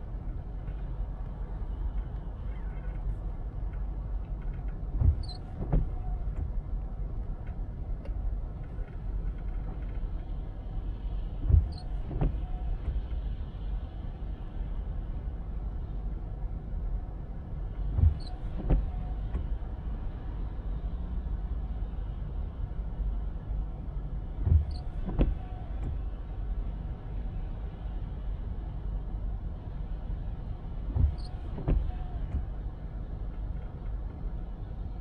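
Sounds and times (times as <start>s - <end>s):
car driving on wet road: 0.0s - 35.0s
faint wiper squeak: 5.0s - 6.5s, 11.5s - 13.0s, 18.0s - 19.5s, 24.5s - 26.0s, 30.9s - 32.5s
windshield wiper thumps: 5.0s - 6.6s, 11.4s - 13.0s, 17.9s - 19.5s, 24.4s - 26.0s, 30.9s - 32.5s.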